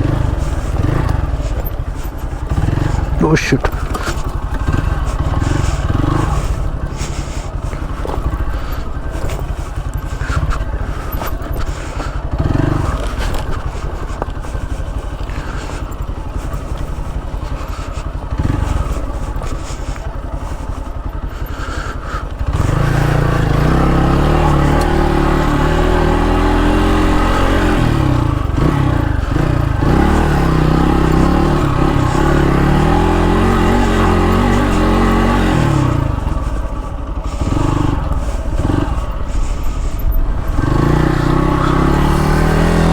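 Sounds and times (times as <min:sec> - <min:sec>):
dirt bike engine revving: 0:00.0 - 0:42.9
scraping and clattering over ground: 0:00.4 - 0:22.9.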